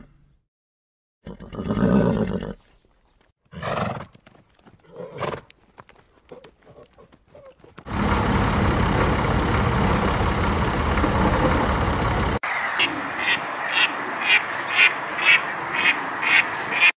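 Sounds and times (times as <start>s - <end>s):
tractors driving past: 7.9s - 12.4s.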